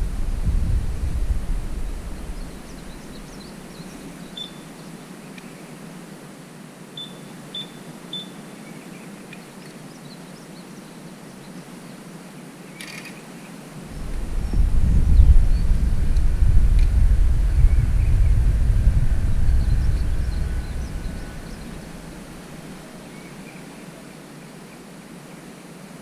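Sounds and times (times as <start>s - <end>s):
low wind rumble: 0.0s - 5.1s, 13.7s - 23.5s.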